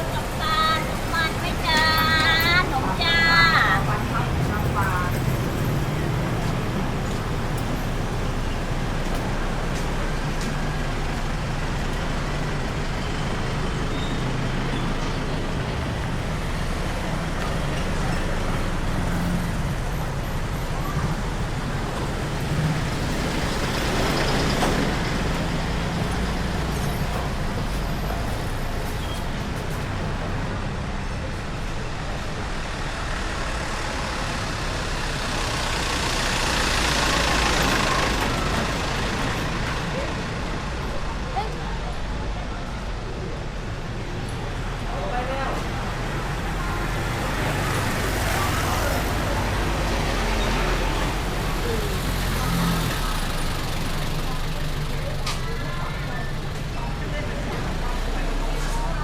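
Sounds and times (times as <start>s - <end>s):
street traffic: 0.0s - 59.0s
vehicles passing close: 0.0s - 59.0s.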